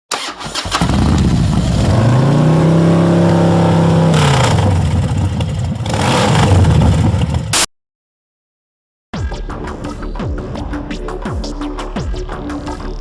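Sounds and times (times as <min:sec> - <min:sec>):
motorcycle engine revving: 0:00.2 - 0:07.7.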